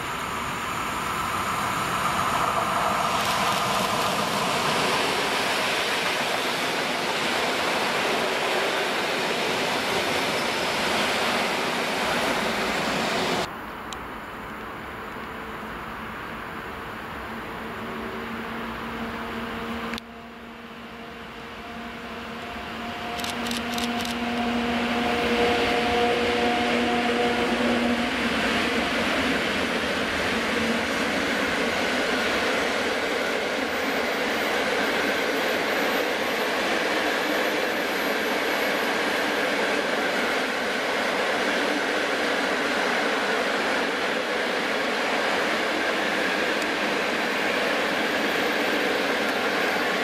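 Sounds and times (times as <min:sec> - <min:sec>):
train wheels rolling on rails: 0:00.0 - 0:13.5, 0:17.4 - 0:50.0
locomotive hum: 0:14.7 - 0:50.0
sharp clicks: 0:23.2 - 0:24.2.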